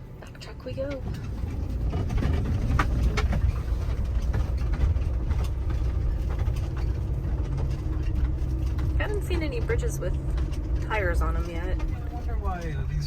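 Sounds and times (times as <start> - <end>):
van engine and road drone: 0.0 - 13.0
knocks and rattles: 0.2 - 13.0.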